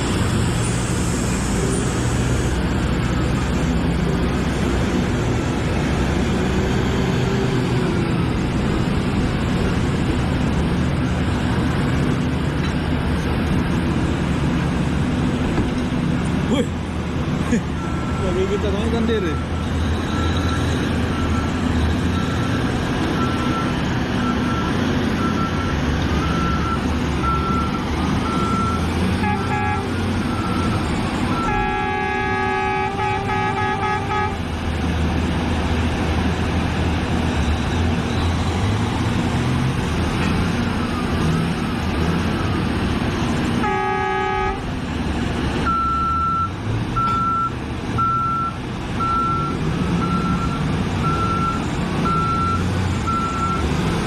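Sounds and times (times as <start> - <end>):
excavator diesel engine running: 0.0 - 54.0
horn blast: 31.4 - 34.4, 43.6 - 44.6.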